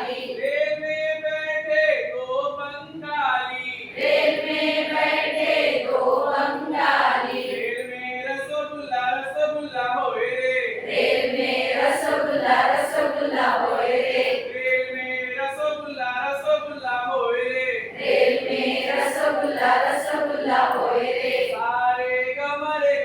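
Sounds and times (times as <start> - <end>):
group singing in unison: 0.0 - 0.5, 4.0 - 7.9, 10.8 - 14.9, 17.9 - 21.9.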